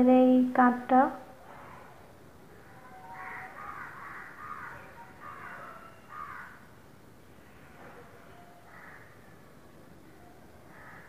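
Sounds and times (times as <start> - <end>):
bird calling harshly: 2.6 - 6.6.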